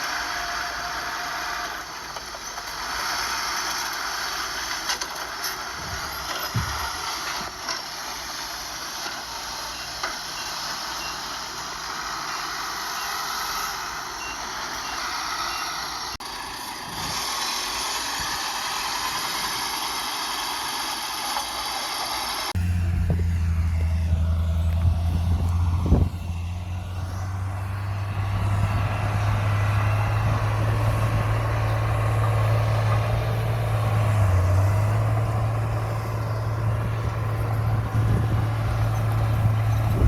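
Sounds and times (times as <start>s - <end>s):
heavy machinery running: 0.0s - 40.0s
reversing alarm beeping: 9.7s - 16.2s.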